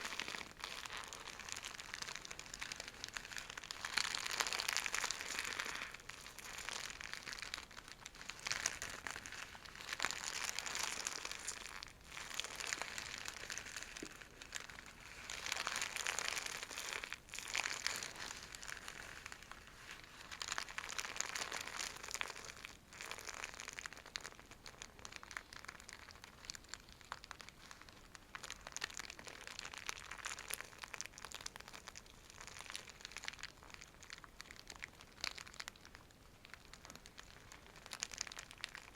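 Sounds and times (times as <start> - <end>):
silk bag crinkling: 0.0 - 38.9.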